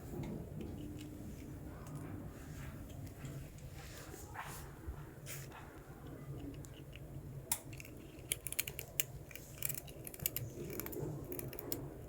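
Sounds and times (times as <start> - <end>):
cat crunching hard snack: 6.4 - 12.0.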